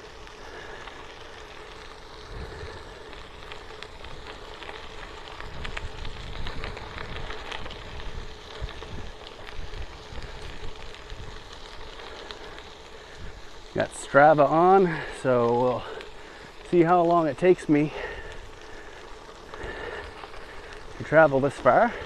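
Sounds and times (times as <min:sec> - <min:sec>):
bicycle tyres rolling on trail: 0:00.0 - 0:22.0
wind rumbling on microphone: 0:00.2 - 0:13.9.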